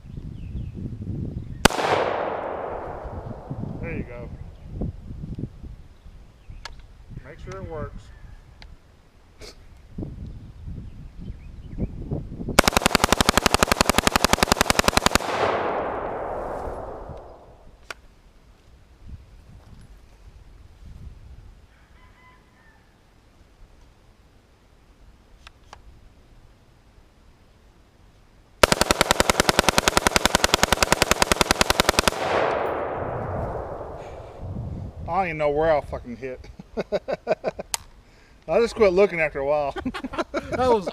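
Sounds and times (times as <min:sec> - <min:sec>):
gunshot echo rolling: 0:01.6 - 0:04.5, 0:12.6 - 0:17.8, 0:28.6 - 0:35.8
rapid rifle gunfire: 0:01.7 - 0:03.7, 0:12.6 - 0:17.6, 0:28.6 - 0:34.5.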